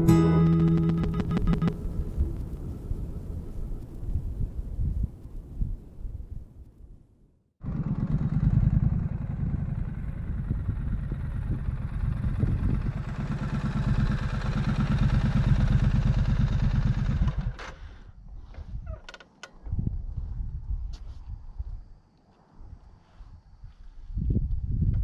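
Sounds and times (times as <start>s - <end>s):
motorcycle engine pulsing exhaust: 0.0s - 3.9s, 7.6s - 17.6s.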